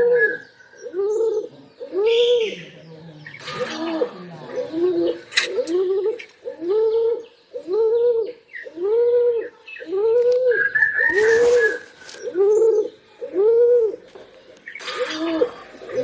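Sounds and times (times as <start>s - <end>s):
pigeon calling: 0.0s - 14.0s, 14.8s - 16.0s
rustling hiss: 3.4s - 6.6s, 11.1s - 12.7s.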